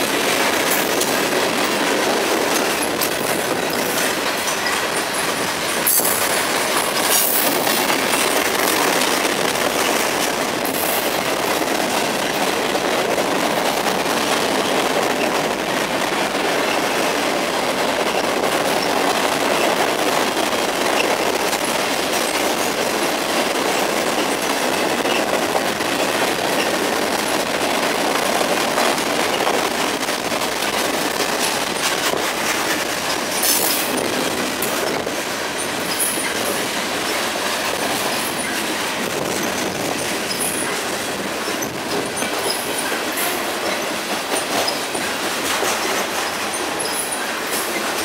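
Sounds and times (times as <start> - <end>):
train wheels on rail clacking: 0.0 - 48.0
high wheel squeaks: 39.4 - 40.8, 41.4 - 48.0.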